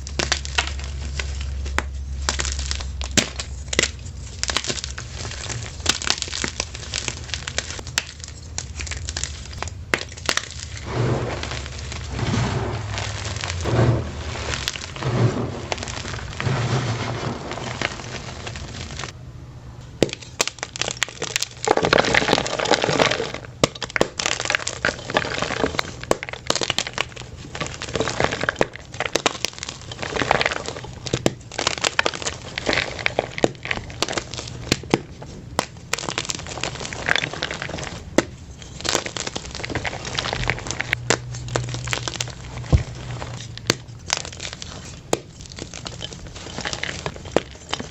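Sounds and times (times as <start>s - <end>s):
chalk crunching by hand: 10.2s - 19.1s.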